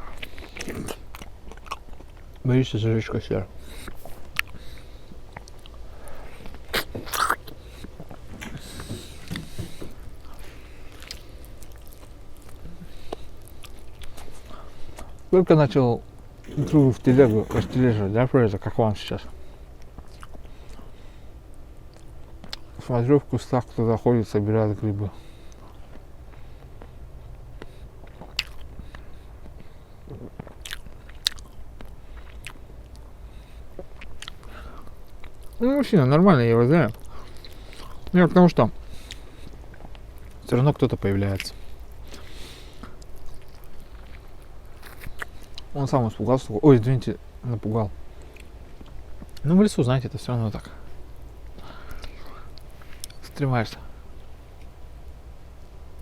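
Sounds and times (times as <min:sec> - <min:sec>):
person chewing food: 0:00.0 - 0:02.4, 0:03.6 - 0:15.3, 0:19.8 - 0:22.8, 0:25.3 - 0:35.6, 0:36.9 - 0:38.1, 0:38.8 - 0:40.4, 0:41.2 - 0:45.7, 0:48.2 - 0:49.4, 0:50.8 - 0:53.2.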